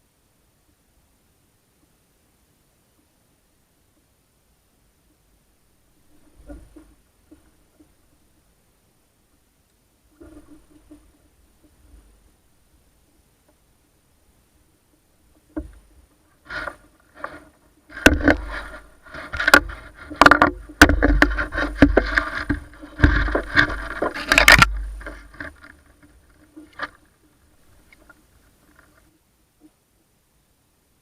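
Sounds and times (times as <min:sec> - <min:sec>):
scraping against kayak hull: 0:06.0 - 0:08.2, 0:10.1 - 0:12.4, 0:15.3 - 0:29.2
knocks and thumps on kayak hull: 0:15.3 - 0:27.1.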